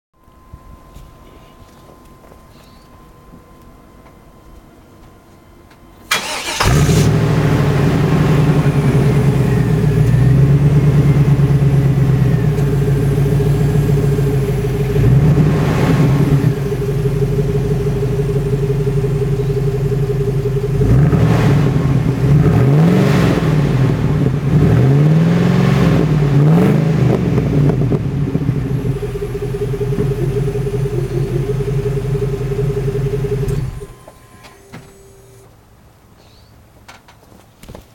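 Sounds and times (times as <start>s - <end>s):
car engine starting idling and revving: 6.1s - 35.4s.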